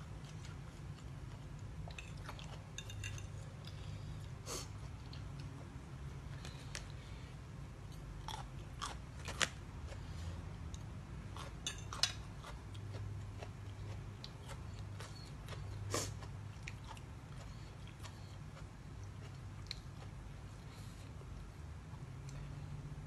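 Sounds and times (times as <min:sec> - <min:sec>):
steady low hum: 0:00.0 - 0:23.0
person chewing crunchy food: 0:00.1 - 0:05.7, 0:07.9 - 0:10.2, 0:11.3 - 0:20.9.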